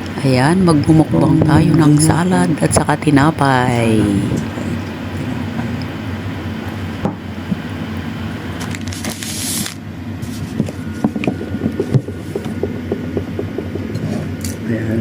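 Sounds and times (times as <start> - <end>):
low hum: 0.0 - 8.8
hissing rustle: 8.6 - 9.8.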